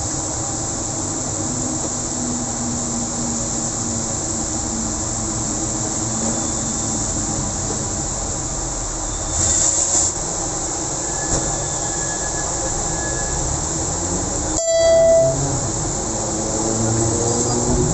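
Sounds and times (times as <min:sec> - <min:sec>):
wet traffic on road: 0:00.0 - 0:17.9
car horn blast: 0:14.6 - 0:15.4.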